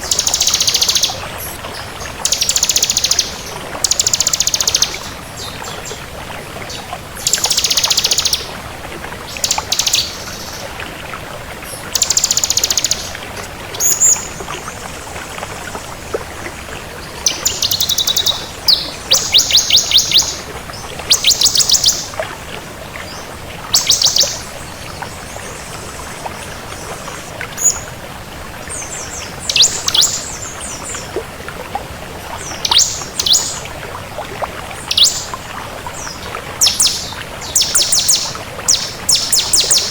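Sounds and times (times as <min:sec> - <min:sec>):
prinia singing: 0:00.0 - 0:06.0, 0:06.7 - 0:08.5, 0:09.3 - 0:10.7, 0:11.7 - 0:14.4, 0:17.2 - 0:20.5, 0:21.1 - 0:22.2, 0:23.7 - 0:24.6, 0:28.9 - 0:31.0, 0:32.4 - 0:33.6, 0:34.8 - 0:35.3, 0:36.0 - 0:39.9.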